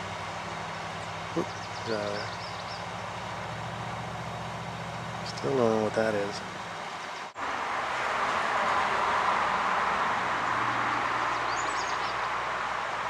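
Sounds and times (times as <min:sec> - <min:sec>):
rushing mechanical noise with hum: 0:00.0 - 0:13.0
high bird chirps: 0:00.6 - 0:02.9, 0:11.2 - 0:12.3.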